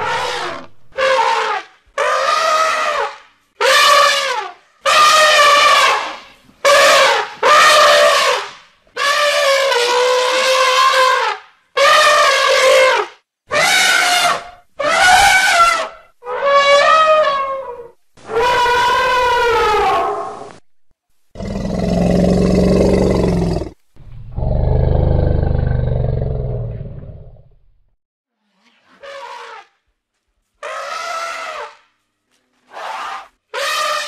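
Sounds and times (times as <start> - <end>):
elephant roaring calls: 0.0 - 1.5, 21.4 - 27.4
elephants trumpeting: 0.0 - 20.5.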